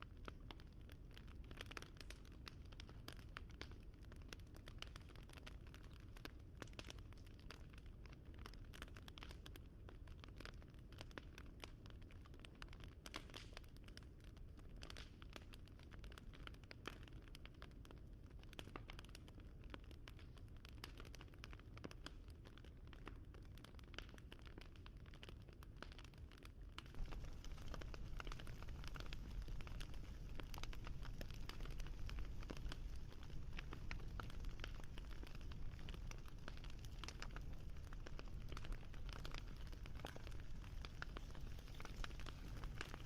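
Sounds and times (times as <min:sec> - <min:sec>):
wood fire crackling: 0:00.1 - 0:17.3, 0:18.5 - 0:43.0
low rumble: 0:26.9 - 0:39.4.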